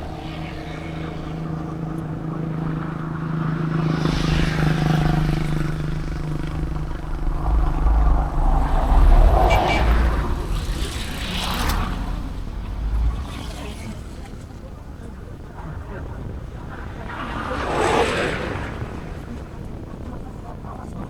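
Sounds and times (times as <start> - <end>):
small truck engine humming: 0.0 - 14.4.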